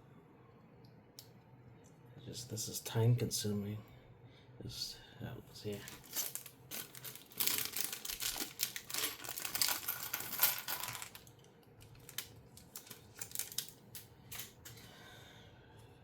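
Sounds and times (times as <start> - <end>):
plastic bag crinkling: 5.7 - 14.0
small plastic parts clicking: 5.9 - 14.5.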